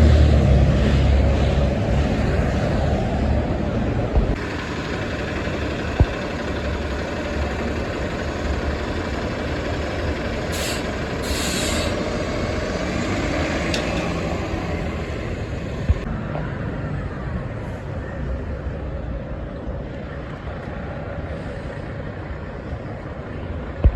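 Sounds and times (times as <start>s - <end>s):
road traffic with heavy trucks: 0.0s - 23.9s
short bursts of hiss: 10.6s - 12.0s.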